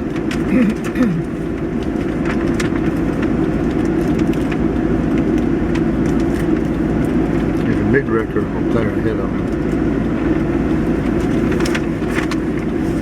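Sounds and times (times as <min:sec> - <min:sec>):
vehicle engines idling and passing: 0:00.0 - 0:13.0.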